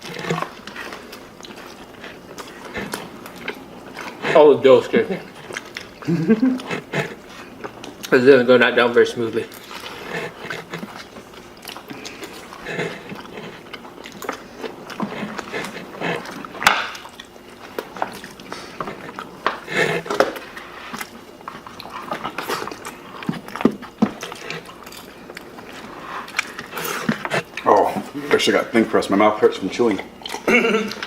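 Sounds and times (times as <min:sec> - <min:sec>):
people chewing pizza: 0:00.0 - 0:31.0.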